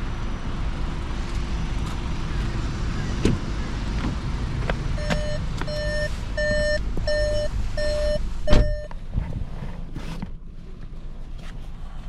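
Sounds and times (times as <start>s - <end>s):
car warning beeps: 4.9s - 9.0s
loud thump: 8.5s - 8.8s.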